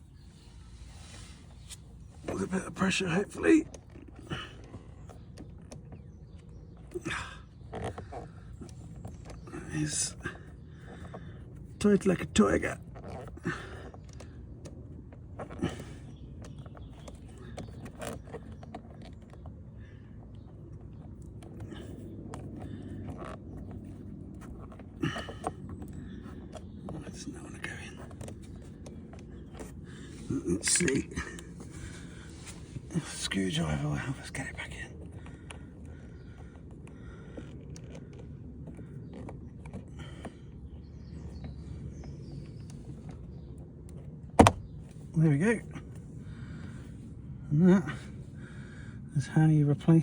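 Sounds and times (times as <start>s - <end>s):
plastic creaking and scraping: 0.0s - 47.0s
outdoor background noise: 0.0s - 50.0s
screwdriver scraping plastic: 16.2s - 19.6s.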